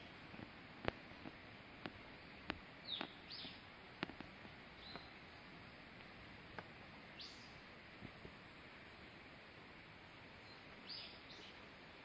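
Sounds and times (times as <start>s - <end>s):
steady low hiss: 0.0s - 12.0s
faint bird chirps: 2.0s - 4.1s, 4.7s - 5.3s, 7.1s - 8.5s, 10.3s - 12.0s.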